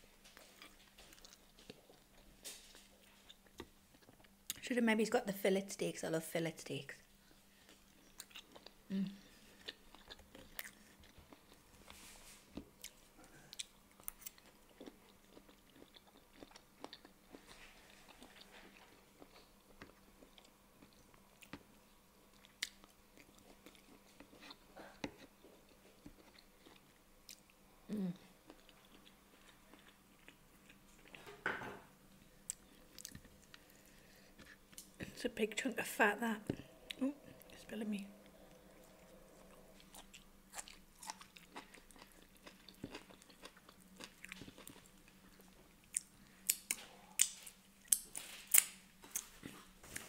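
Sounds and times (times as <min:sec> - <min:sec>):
wet chewing of meat: 0:09.4 - 0:21.6, 0:38.2 - 0:50.0.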